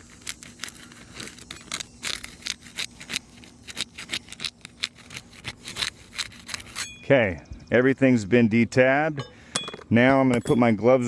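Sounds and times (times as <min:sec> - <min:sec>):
shingles crackling and snapping: 0:00.0 - 0:06.8.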